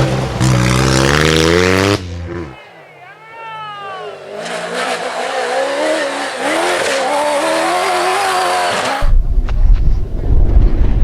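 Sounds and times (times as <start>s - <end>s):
vehicle engine revving: 0.0s - 2.6s, 4.2s - 9.0s
wind rumbling on microphone: 9.0s - 11.0s.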